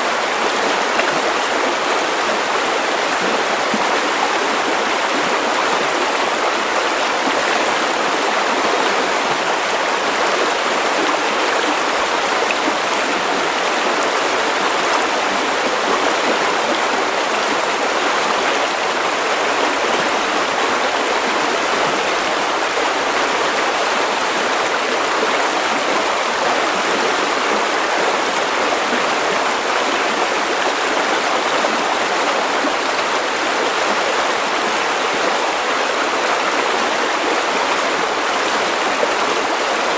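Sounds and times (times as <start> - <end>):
river water over stones: 0.0 - 39.9.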